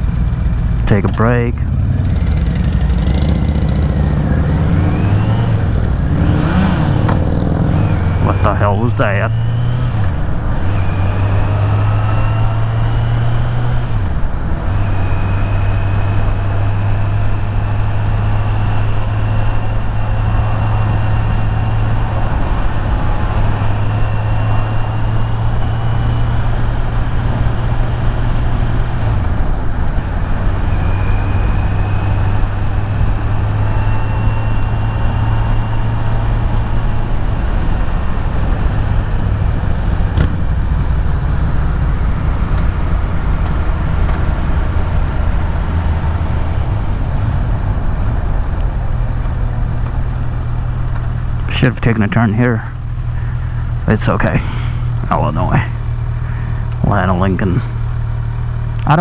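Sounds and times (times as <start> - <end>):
motorcycle engine running: 0.0 - 59.0
faint high whine: 30.6 - 38.1.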